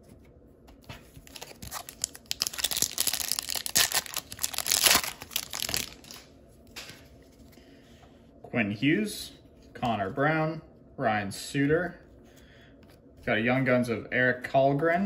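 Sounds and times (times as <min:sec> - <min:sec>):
wrapper tearing and crinkling: 0:01.2 - 0:06.3.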